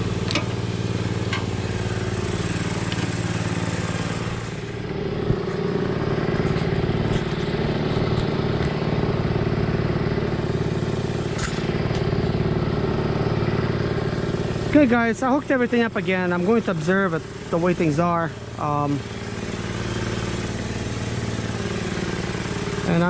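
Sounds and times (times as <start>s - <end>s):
engine humming: 0.0s - 23.0s.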